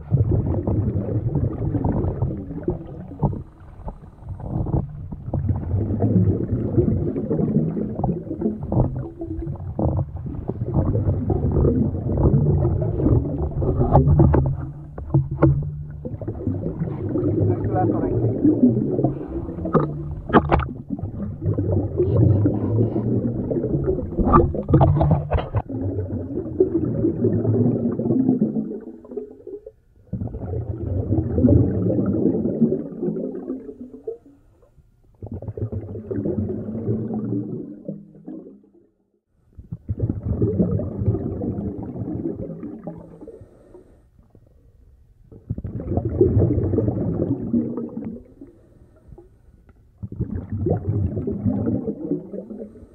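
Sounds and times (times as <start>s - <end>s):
diver's exhaled bubbles underwater: 0.0s - 38.9s, 39.5s - 52.9s
water sloshing and gurgling: 0.0s - 52.9s
diver breathing through regulator: 18.9s - 20.4s, 21.7s - 25.3s, 43.0s - 44.2s, 48.3s - 49.3s, 52.5s - 52.9s.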